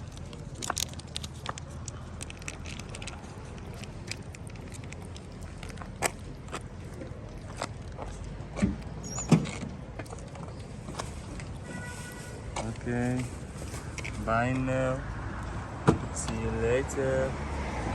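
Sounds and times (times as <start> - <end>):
cat chewing food: 0.0 - 9.0.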